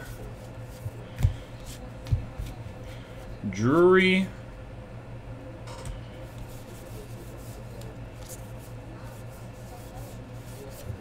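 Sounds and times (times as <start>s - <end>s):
trading cards rubbing and flicking: 0.0s - 3.9s, 6.2s - 11.0s
low electrical hum: 0.0s - 11.0s.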